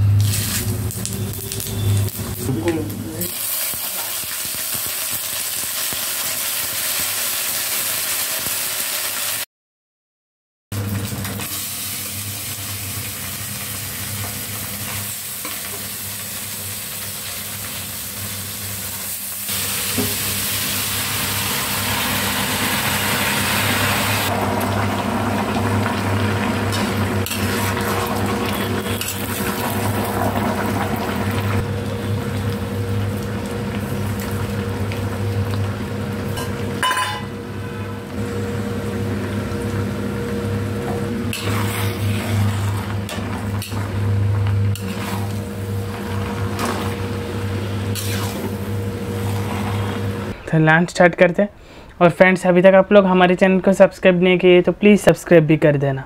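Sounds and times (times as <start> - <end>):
spices sizzling in hot oil: 0.0 - 9.4, 10.8 - 37.6, 38.2 - 50.3
vegetables stirred and frying: 0.0 - 9.4, 10.8 - 36.8, 38.2 - 50.4.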